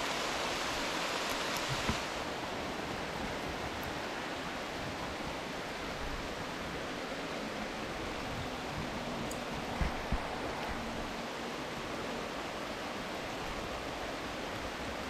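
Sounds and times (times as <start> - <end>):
heavy rain on pond and foliage: 0.0 - 15.0.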